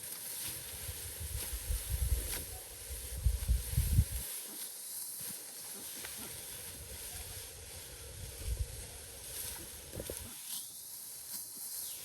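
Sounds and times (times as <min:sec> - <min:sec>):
wind buffeting microphone: 0:00.9 - 0:04.2, 0:08.0 - 0:08.9.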